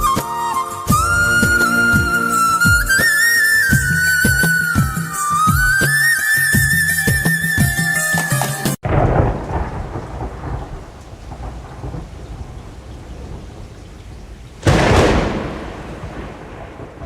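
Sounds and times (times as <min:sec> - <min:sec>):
background music: 0:00.0 - 0:08.8
thunder rumbling: 0:00.9 - 0:06.0, 0:08.8 - 0:17.0
loud thunderclap: 0:08.8 - 0:17.0
steady rain: 0:08.8 - 0:17.0.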